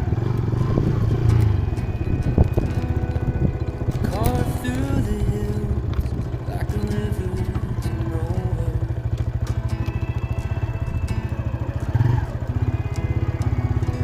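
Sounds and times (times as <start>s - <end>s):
motorcycle engine running: 0.0s - 14.0s
clicks and clatter: 0.1s - 14.0s.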